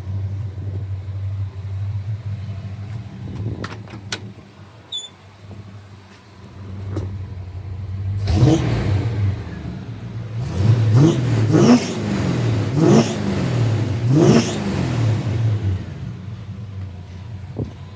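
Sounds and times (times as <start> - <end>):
car engine idling: 0.0 - 17.9
engine revving: 6.8 - 17.9.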